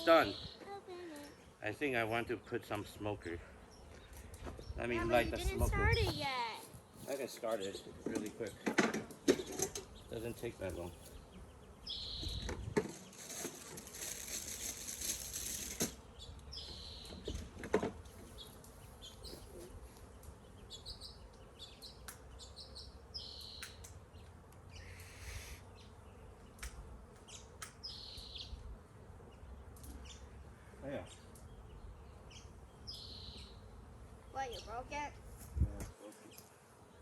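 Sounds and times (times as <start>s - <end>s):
high bird chirps: 0.0s - 0.7s, 11.8s - 12.6s, 20.6s - 23.9s, 32.3s - 33.6s.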